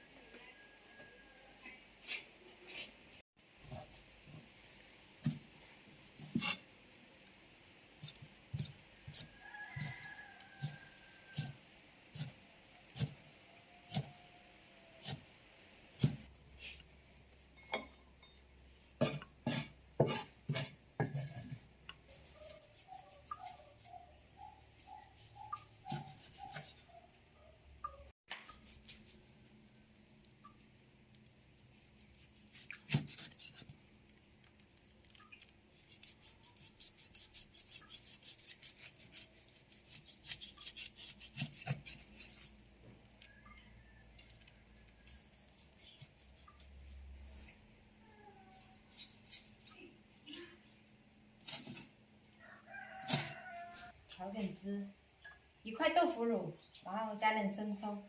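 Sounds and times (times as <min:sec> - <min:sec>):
bowls and utensils clinking: 0:17.5 - 0:18.5.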